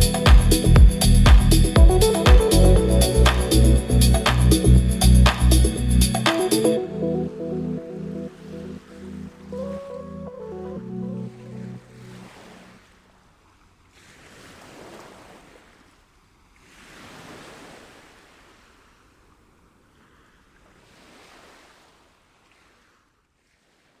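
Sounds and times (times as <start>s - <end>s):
ambient music: 0.0s - 12.3s
sea waves washing: 0.0s - 13.0s.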